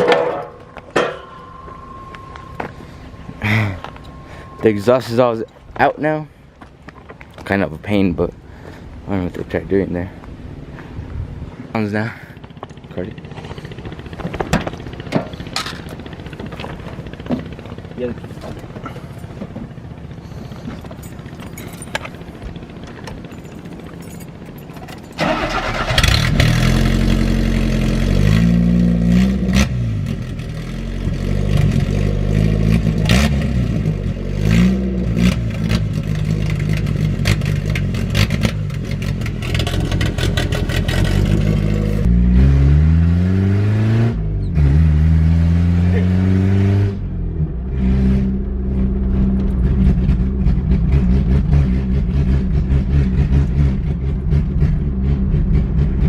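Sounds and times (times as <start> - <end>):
unmuffled engine revving and idling: 25.2 - 56.0.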